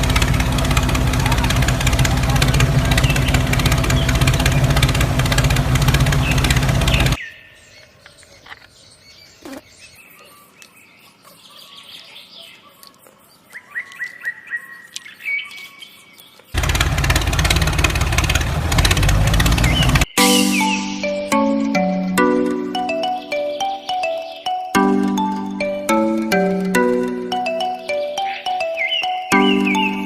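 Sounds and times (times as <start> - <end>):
engine running with low hum: 0.0 - 7.2, 16.6 - 20.2
birds chirping: 0.0 - 30.0.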